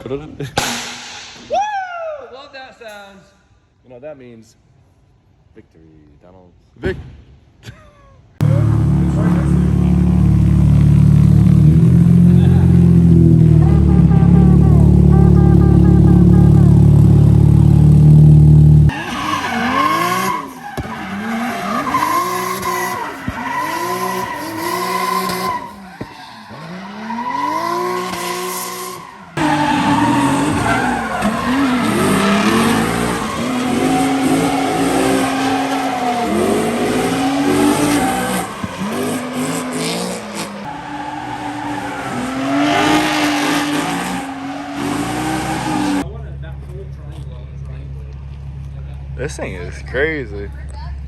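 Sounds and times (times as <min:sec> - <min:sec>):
loud low steady drone: 0:08.4 - 0:10.6
car engine revving: 0:08.4 - 0:46.1
tyres squealing and skidding: 0:08.4 - 0:46.1.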